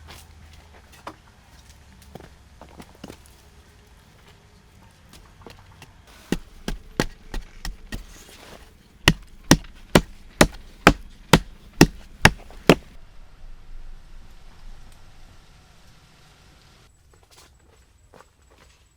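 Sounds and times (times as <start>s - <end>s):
axe chopping wood: 6.3s - 8.3s, 9.1s - 13.0s.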